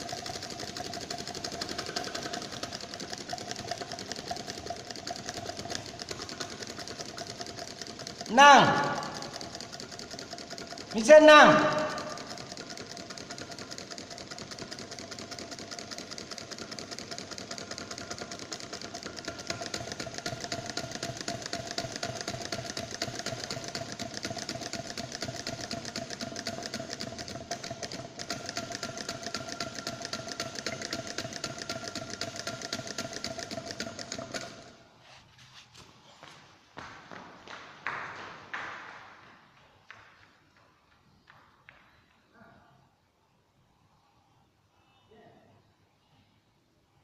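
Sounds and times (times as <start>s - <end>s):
small steam engine clattering: 0.0s - 34.8s.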